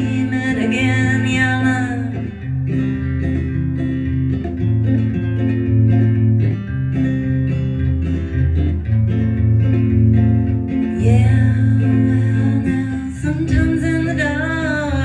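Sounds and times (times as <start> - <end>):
person singing: 0.0 - 2.6, 10.9 - 15.0
bass line: 0.0 - 15.0
guitar strumming chords: 0.0 - 15.0.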